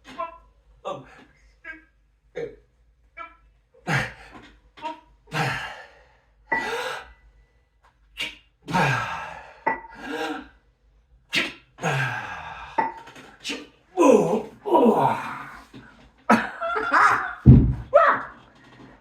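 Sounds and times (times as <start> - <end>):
man breathing hard: 5.3 - 7.2, 11.8 - 13.0.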